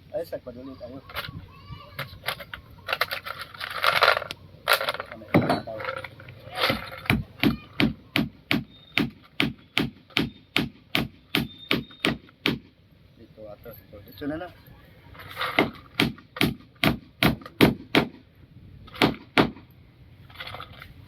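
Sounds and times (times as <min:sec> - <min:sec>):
hammer driving nails into wood: 0:06.6 - 0:12.7, 0:15.4 - 0:18.2, 0:18.9 - 0:19.6.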